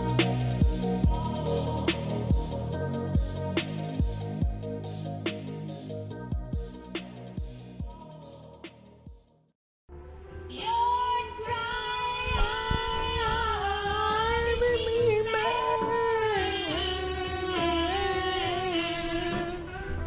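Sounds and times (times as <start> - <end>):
high singing voice: 0.0 - 4.4, 10.5 - 20.0
steady bass line: 0.0 - 11.8.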